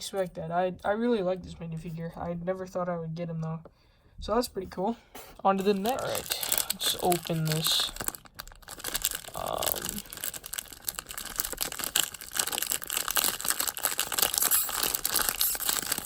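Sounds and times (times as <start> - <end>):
plastic bag crinkling and tearing: 5.6 - 16.0.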